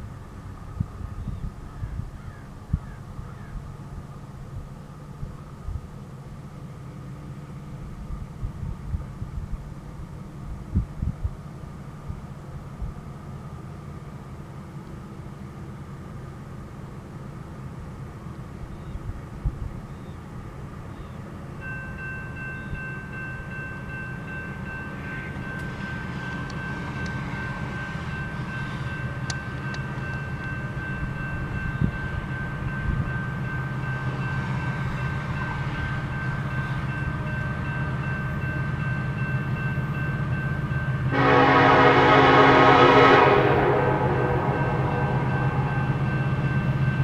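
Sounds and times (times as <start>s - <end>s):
diesel locomotive engine rumble: 0.0s - 47.0s
locomotive air horn blast: 41.1s - 46.0s.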